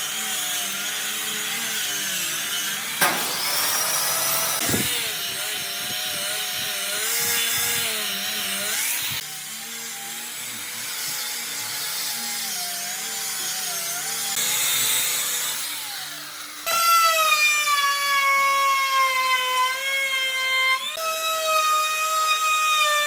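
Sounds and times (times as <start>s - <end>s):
power tool motor whine: 0.0s - 10.4s.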